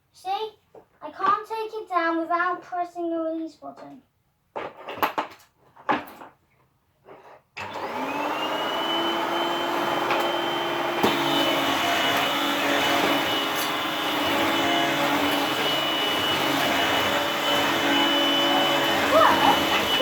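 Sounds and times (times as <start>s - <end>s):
vacuum cleaner motor whine: 7.6s - 20.0s.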